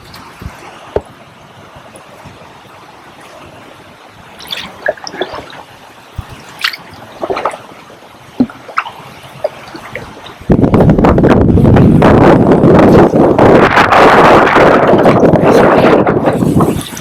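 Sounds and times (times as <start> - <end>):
kayak paddle splashes: 0.0 - 17.0
water dripping off paddle: 4.2 - 10.6.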